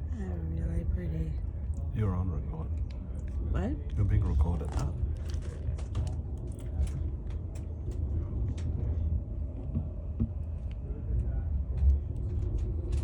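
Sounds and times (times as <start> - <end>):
train rumbling inside carriage: 0.0 - 2.8, 3.4 - 13.0
light clicks and rattles: 4.4 - 9.0, 9.6 - 13.0.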